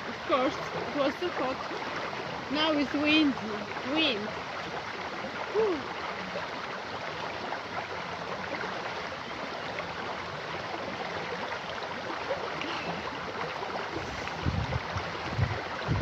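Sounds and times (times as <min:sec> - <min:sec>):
river rushing over stones: 0:00.0 - 0:16.0
wind buffeting microphone: 0:13.9 - 0:16.0.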